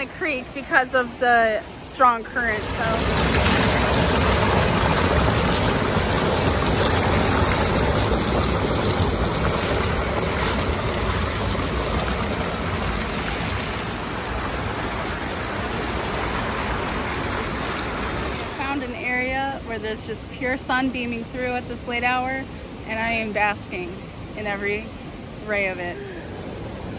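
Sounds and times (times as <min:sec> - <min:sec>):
creek water rushing over rocks: 0:00.0 - 0:19.3, 0:26.0 - 0:26.9.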